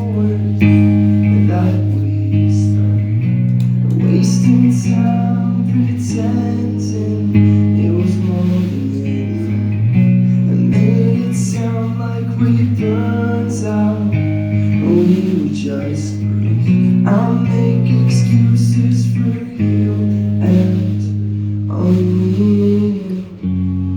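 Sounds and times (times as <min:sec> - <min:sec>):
rock band playing: 0:00.0 - 0:23.9.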